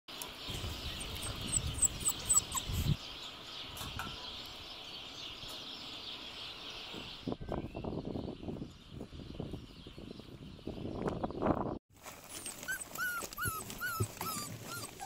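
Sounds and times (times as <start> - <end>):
birds chirping: 0.1 - 15.0
rustling: 12.0 - 15.0.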